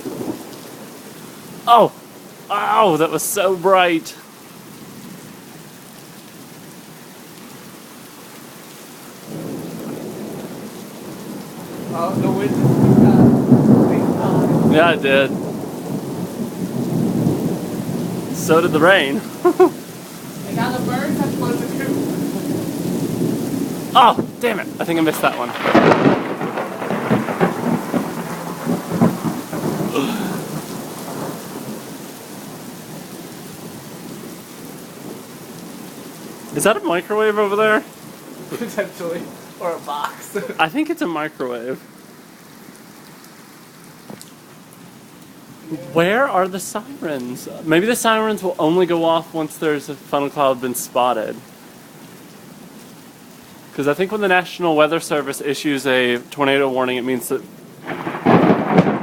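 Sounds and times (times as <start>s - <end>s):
thunder rumbling: 0.0s - 4.2s, 9.2s - 35.6s, 36.2s - 41.9s, 57.3s - 59.0s
steady rain: 0.0s - 59.0s.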